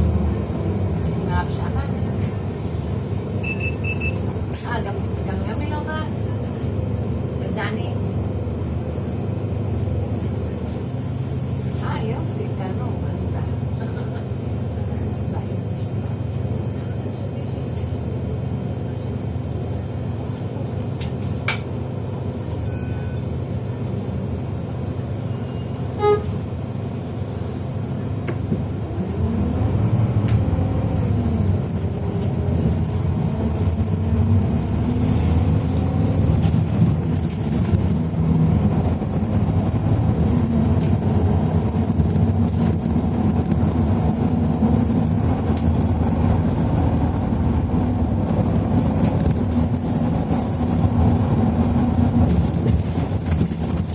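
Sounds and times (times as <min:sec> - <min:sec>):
vehicle engine rumbling: 0:00.0 - 0:53.9
short beep: 0:03.4 - 0:04.2, 0:22.6 - 0:23.2.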